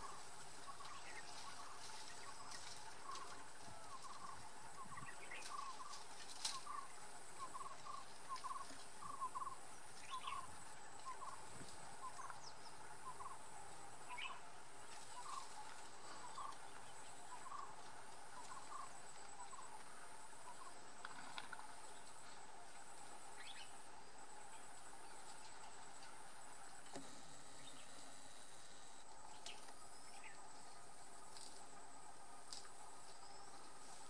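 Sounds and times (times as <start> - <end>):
high insect buzz: 0.0 - 34.0
bird chirping: 6.6 - 17.8, 23.3 - 23.8, 27.4 - 28.2.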